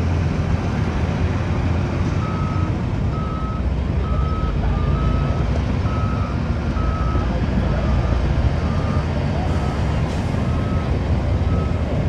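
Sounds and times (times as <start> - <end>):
heavy machine engine rumbling: 0.0 - 12.0
reversing alarm beeps: 2.2 - 10.9, 11.5 - 11.8.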